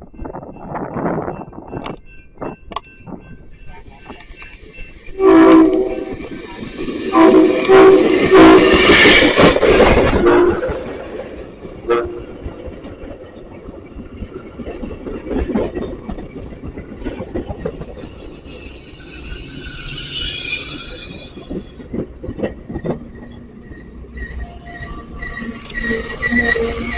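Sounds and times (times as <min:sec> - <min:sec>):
train rumbling past: 0:00.0 - 0:26.9
wheels clicking over rail joints: 0:01.7 - 0:18.8, 0:21.3 - 0:24.5
wheels squealing on rail: 0:03.5 - 0:12.2, 0:17.0 - 0:26.9
train horn chord: 0:05.2 - 0:06.2, 0:07.1 - 0:09.0, 0:10.0 - 0:10.8, 0:11.9 - 0:12.4.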